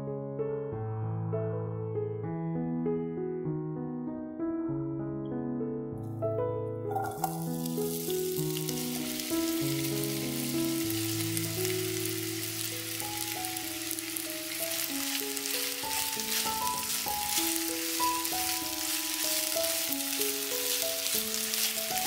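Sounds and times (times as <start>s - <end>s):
background music with held notes: 0.0s - 22.0s
zucchini sticks sizzling in oil: 6.9s - 22.0s.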